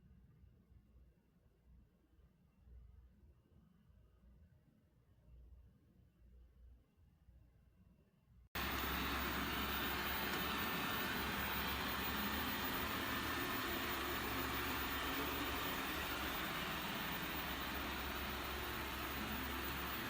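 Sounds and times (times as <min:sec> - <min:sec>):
machine whirring: 0:08.6 - 0:20.0.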